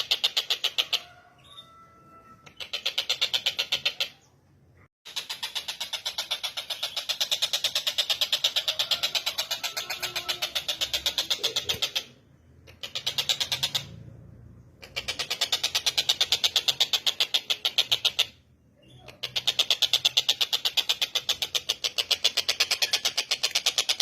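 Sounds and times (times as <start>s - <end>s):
kingfisher chattering call: 7.0s - 12.2s.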